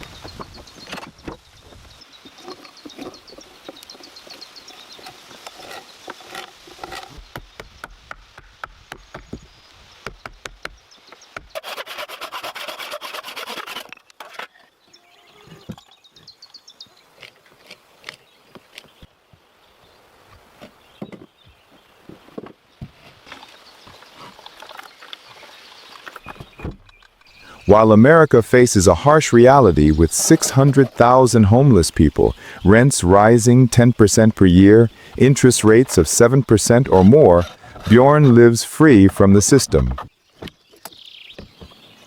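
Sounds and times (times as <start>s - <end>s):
wood rasping: 11.4s - 14.4s
tool scraping wood: 11.4s - 14.6s, 36.7s - 38.0s.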